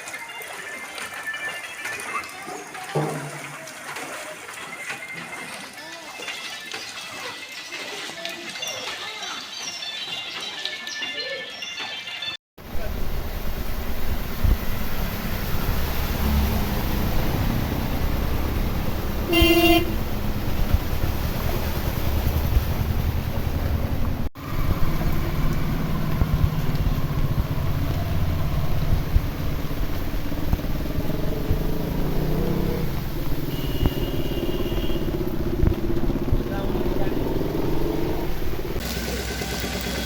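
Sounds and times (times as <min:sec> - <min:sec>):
street traffic engines: 0:12.6 - 0:40.0
vehicle horn tooting: 0:19.2 - 0:20.0, 0:33.4 - 0:35.2.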